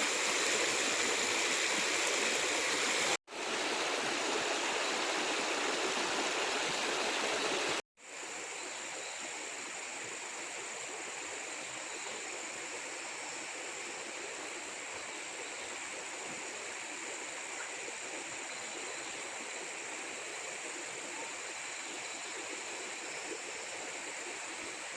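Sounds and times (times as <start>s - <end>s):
stream water rushing: 0.0s - 7.8s.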